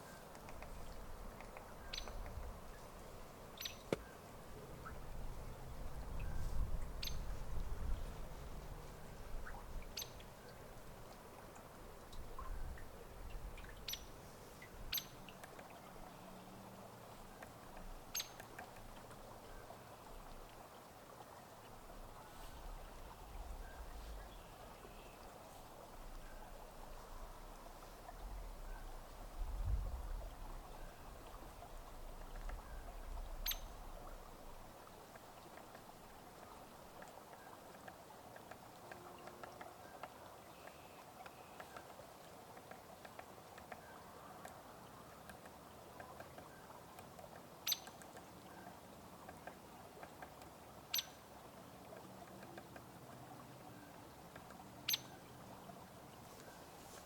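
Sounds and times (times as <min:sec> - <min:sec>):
woodpecker call notes: 0:00.0 - 0:02.5, 0:03.6 - 0:04.2, 0:07.0 - 0:07.3, 0:09.4 - 0:10.6, 0:13.6 - 0:14.1, 0:14.9 - 0:15.7, 0:18.1 - 0:18.7, 0:33.4 - 0:33.8, 0:47.6 - 0:48.0, 0:50.9 - 0:51.2, 0:54.9 - 0:55.2
low wind rumble: 0:04.3 - 0:09.9, 0:26.0 - 0:34.7.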